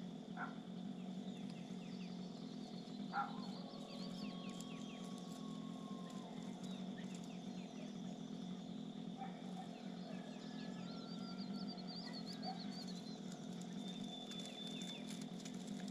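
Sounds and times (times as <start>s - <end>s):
small birds chirping: 0.0s - 15.9s
steady low hum: 0.0s - 15.9s
high-pitched drone: 3.1s - 15.2s.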